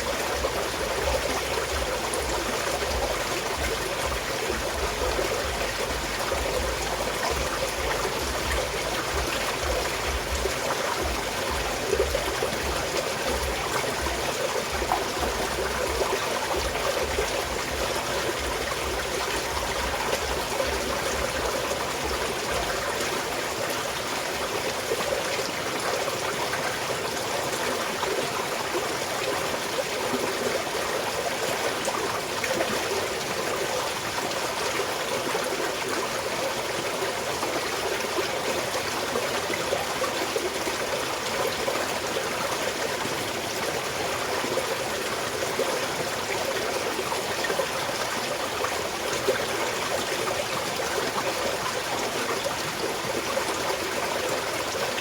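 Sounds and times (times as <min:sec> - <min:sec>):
mountain stream flowing: 0:00.0 - 0:55.0.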